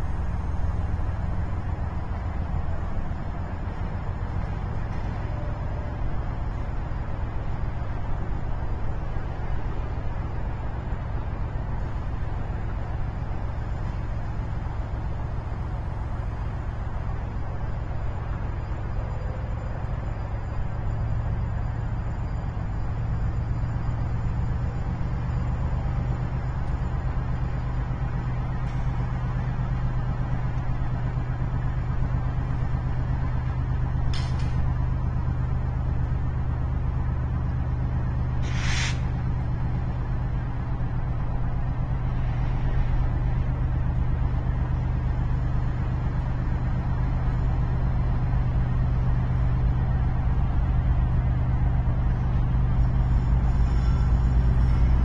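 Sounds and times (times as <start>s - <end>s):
constant low hum: 0.0s - 55.0s
freight train rumbling: 0.0s - 55.0s
short hiss: 38.4s - 39.2s.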